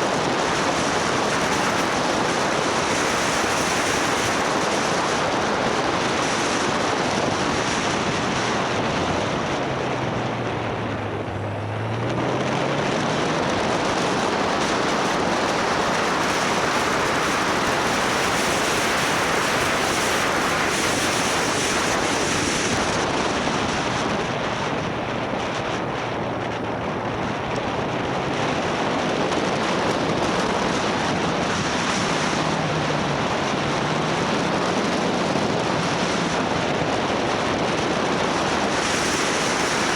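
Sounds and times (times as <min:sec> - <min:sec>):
wind rushing over microphone: 0:00.0 - 0:39.9
motorcycle engine running: 0:21.8 - 0:35.6.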